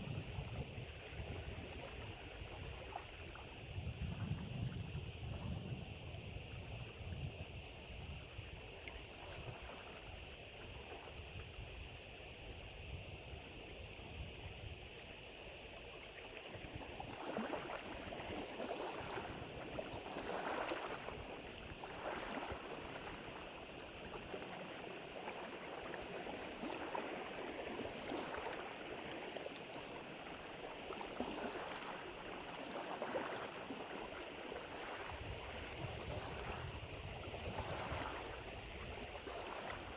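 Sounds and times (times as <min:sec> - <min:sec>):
wind noise on microphone: 0:00.0 - 0:24.0, 0:34.6 - 0:39.9
small waves lapping at shore: 0:00.0 - 0:39.9.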